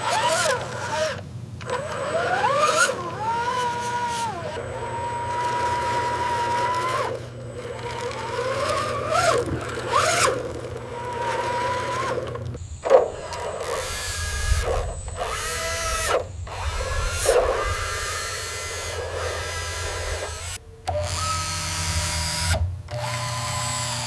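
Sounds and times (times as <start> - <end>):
low mechanical rumble: 0.0 - 23.1
small machine motor whining: 0.0 - 24.0.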